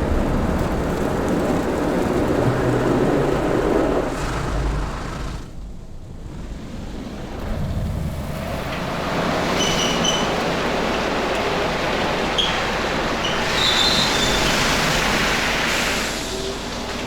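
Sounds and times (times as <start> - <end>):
car wash equipment rushing: 0.0 - 17.0.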